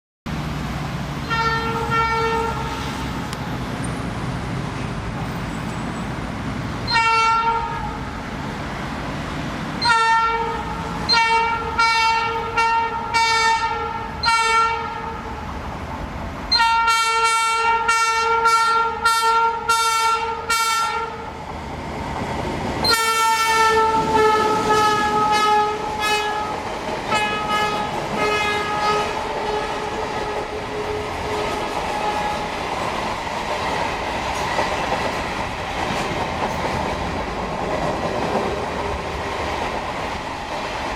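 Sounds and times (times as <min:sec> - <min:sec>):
locomotive horn blasts: 0:01.2 - 0:03.0, 0:06.9 - 0:08.0, 0:09.8 - 0:15.3, 0:16.5 - 0:21.2, 0:22.8 - 0:32.4
clickety-clack of rolling flatcars: 0:21.5 - 0:40.9.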